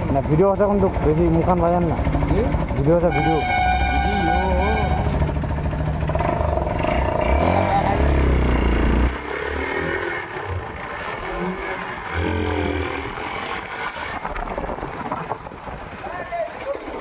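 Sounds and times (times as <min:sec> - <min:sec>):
vehicle engine revving: 0:00.7 - 0:15.1
second engine rising in pitch: 0:03.1 - 0:14.2.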